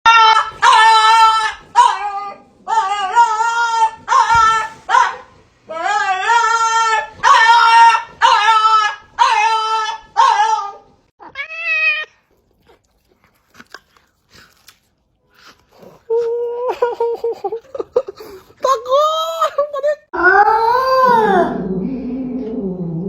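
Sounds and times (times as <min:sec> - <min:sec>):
cat meowing: 0:10.6 - 0:12.2.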